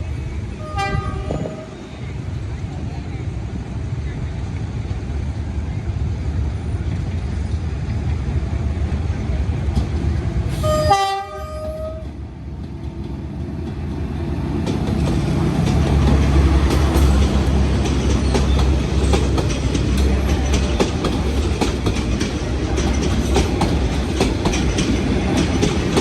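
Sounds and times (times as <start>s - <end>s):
train rumble: 0.0s - 26.0s
train horn blast: 0.6s - 1.8s, 10.5s - 12.2s
clickety-clack of train wheels: 0.7s - 26.0s.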